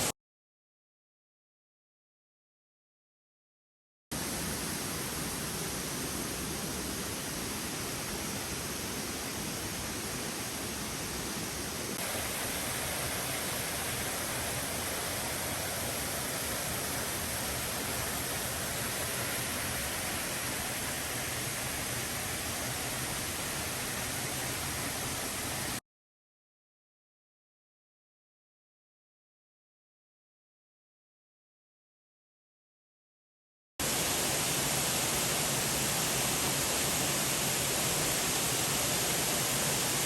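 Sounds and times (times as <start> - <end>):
waterfall rushing: 12.0 - 25.5, 33.8 - 40.0.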